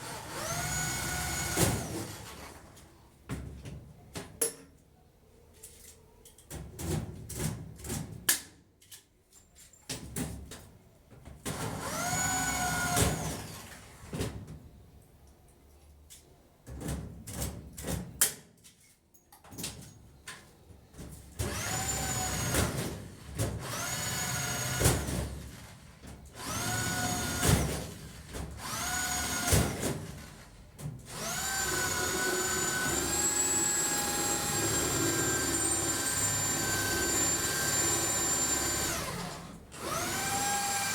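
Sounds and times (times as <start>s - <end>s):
electric drill whining: 0.0s - 2.5s, 11.8s - 13.7s, 21.5s - 22.6s, 23.6s - 24.8s, 26.4s - 28.0s, 28.6s - 30.4s, 31.1s - 40.9s.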